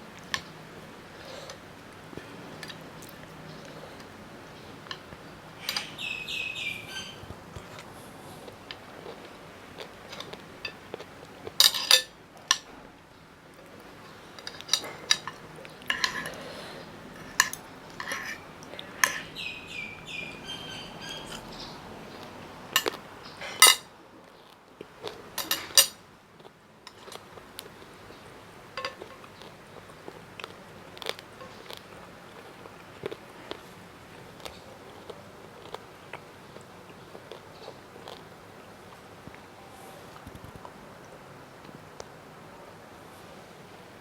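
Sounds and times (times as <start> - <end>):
cutlery clinking and scraping dish: 5.6 - 6.0, 11.6 - 12.8, 14.4 - 19.3, 22.7 - 23.9, 25.4 - 26.0, 28.8 - 29.3.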